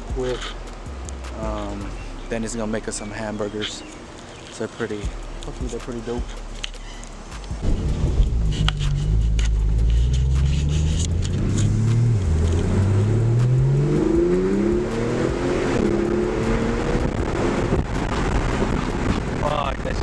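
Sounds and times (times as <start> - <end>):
car engine accelerating hard: 7.6 - 20.0.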